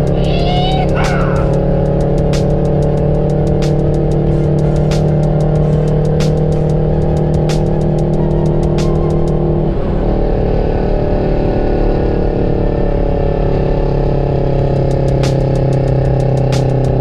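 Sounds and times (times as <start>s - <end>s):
diesel truck engine running: 0.0s - 13.4s.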